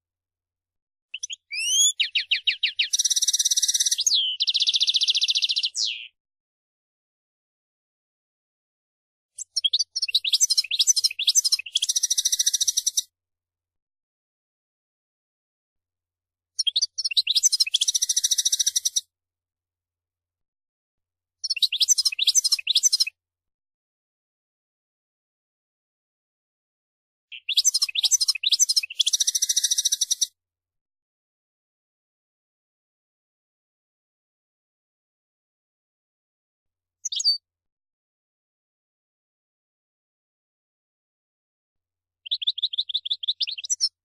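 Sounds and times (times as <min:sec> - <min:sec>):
goldfinch singing: 0:01.2 - 0:06.1, 0:09.4 - 0:13.0, 0:16.6 - 0:19.0, 0:21.4 - 0:23.1, 0:27.4 - 0:30.3, 0:42.2 - 0:44.0.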